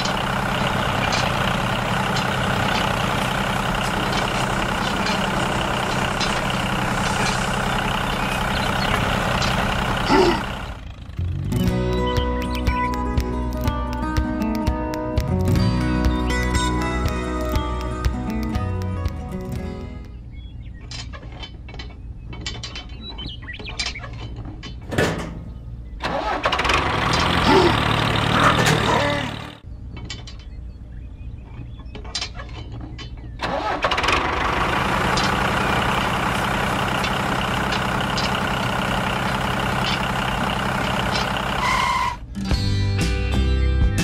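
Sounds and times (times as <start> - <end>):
miniature tractor engine: 0.0 - 11.2, 26.0 - 29.6, 33.4 - 42.2.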